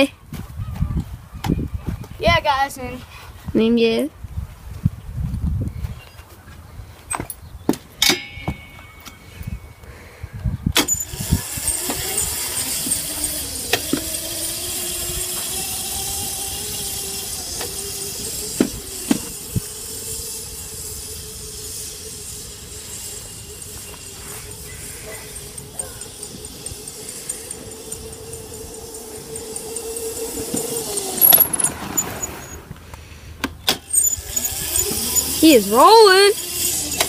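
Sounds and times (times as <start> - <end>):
dirt bike motor whine: 10.6 - 37.0.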